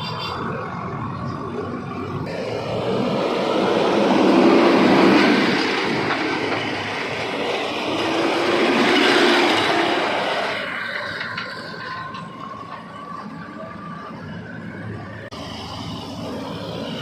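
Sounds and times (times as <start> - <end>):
diesel machinery engine revving: 0.5 - 11.8.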